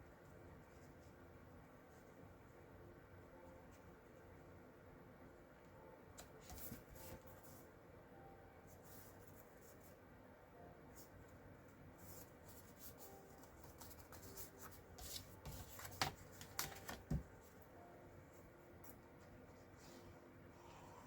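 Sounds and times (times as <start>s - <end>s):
paper rustling: 12.1s - 17.2s.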